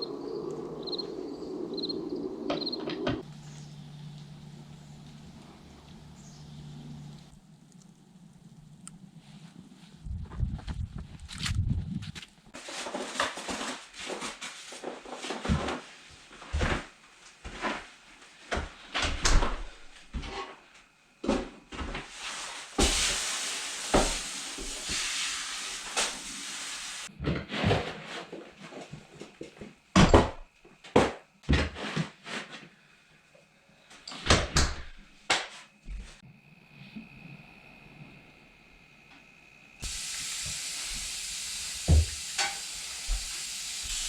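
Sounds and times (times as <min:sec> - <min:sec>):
hissing: 0:00.0 - 0:09.8, 0:36.7 - 0:44.0.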